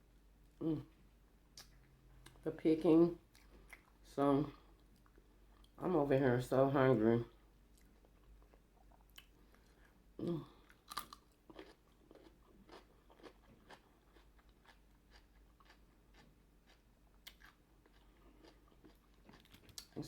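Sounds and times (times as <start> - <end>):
person chewing food: 3.2 - 4.0, 4.6 - 5.8, 7.7 - 20.0.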